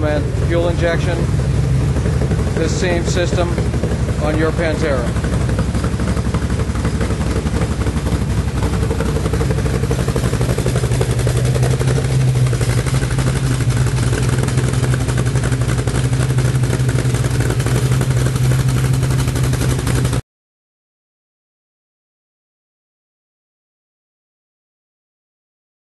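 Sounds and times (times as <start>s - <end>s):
car engine idling: 0.0s - 20.2s.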